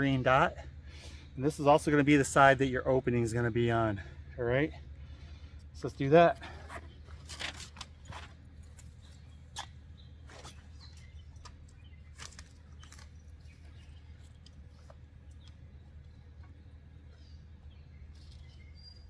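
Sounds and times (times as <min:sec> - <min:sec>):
low steady hum: 0:00.0 - 0:19.0
clicks and rustles of netting: 0:06.4 - 0:15.6.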